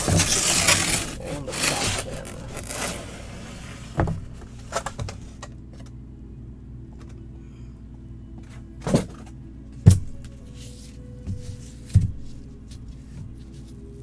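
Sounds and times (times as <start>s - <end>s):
packaging knocks and scrapes: 0.0s - 5.4s
faint background music: 0.0s - 14.0s.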